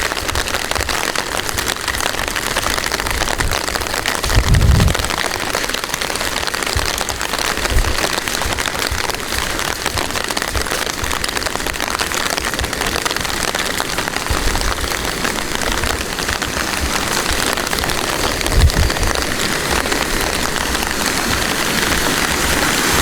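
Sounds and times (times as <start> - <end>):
steady rain falling: 0.0 - 23.0
low thumps: 4.2 - 5.6.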